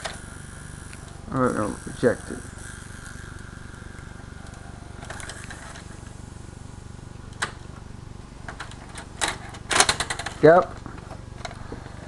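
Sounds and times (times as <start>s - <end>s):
mechanical clicking and rattling: 0.0s - 6.2s, 8.4s - 12.0s
tape player motor hum: 0.0s - 12.0s.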